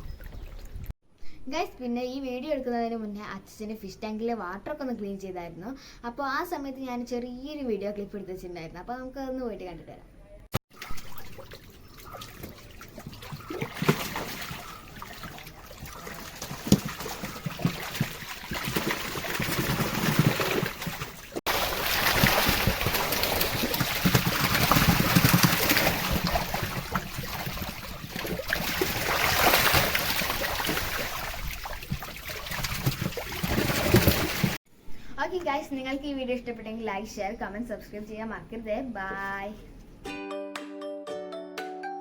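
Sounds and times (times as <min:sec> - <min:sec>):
water trickling and splashing: 0:00.0 - 0:00.9, 0:10.7 - 0:34.6.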